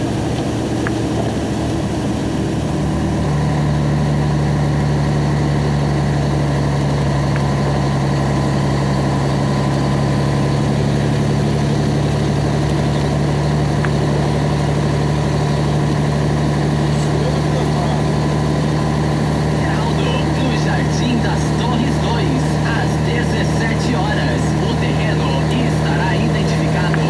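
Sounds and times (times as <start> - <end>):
truck engine drone inside cab: 0.0 - 27.0.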